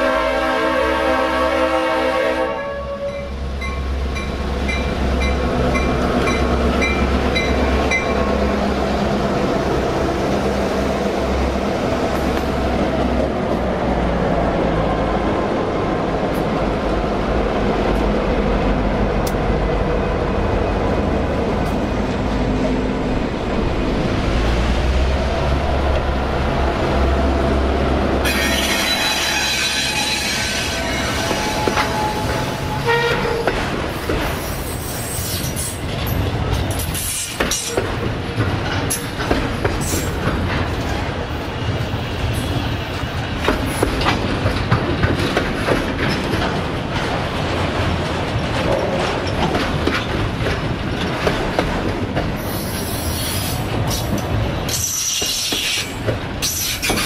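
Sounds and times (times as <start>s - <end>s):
train horn: 0.0s - 3.3s, 28.2s - 33.6s
train rumbling past: 0.0s - 57.0s.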